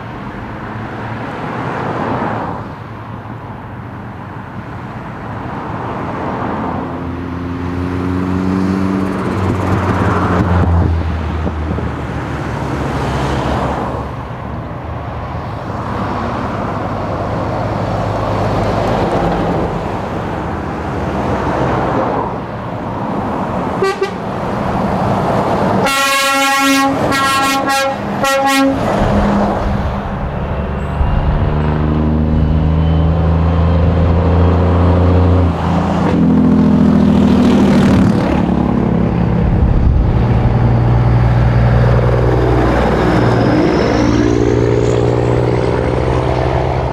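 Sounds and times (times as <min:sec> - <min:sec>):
road noise: 0:00.0 - 0:46.9
truck diesel engines running: 0:00.0 - 0:46.9
truck air horn blasts: 0:23.8 - 0:24.3, 0:25.8 - 0:31.5.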